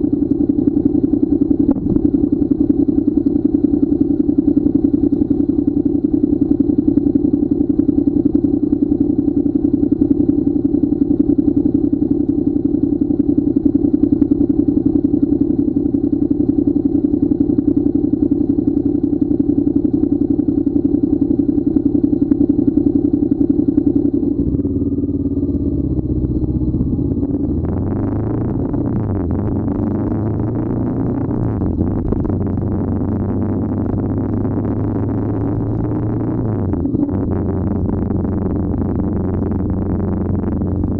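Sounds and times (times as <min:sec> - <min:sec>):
motorcycle engine running: 0:00.0 - 0:40.9
low drone: 0:01.4 - 0:05.5, 0:24.1 - 0:40.9.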